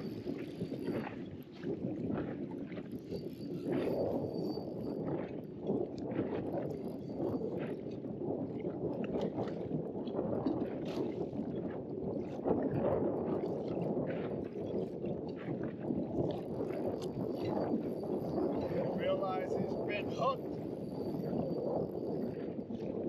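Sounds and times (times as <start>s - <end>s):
water lapping against boat hull: 7.6s - 18.5s.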